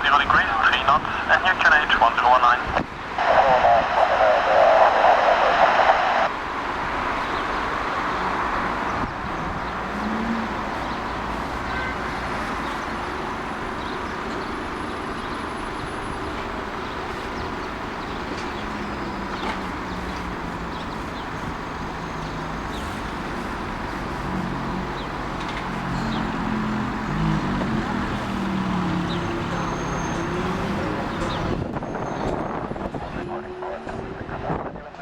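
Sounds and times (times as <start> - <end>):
radio hiss: 0.0 - 6.3
jet engines rushing: 0.0 - 6.4.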